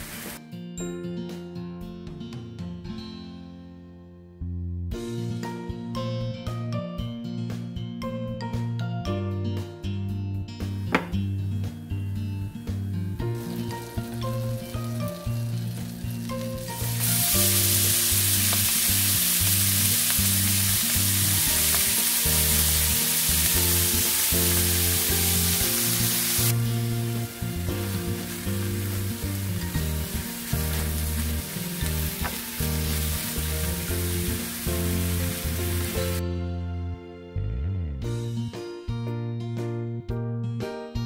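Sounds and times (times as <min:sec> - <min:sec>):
bacon sizzling in a frying pan: 0:00.0 - 0:00.4, 0:13.2 - 0:36.2
background music: 0:00.0 - 0:41.0.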